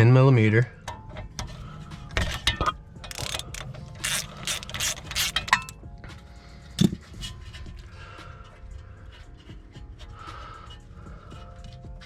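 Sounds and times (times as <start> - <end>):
ratchet wrench clicking: 2.3 - 5.8.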